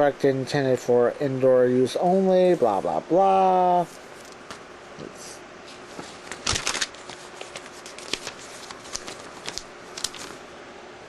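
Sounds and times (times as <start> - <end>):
paper and packaging rustling: 5.9 - 10.4.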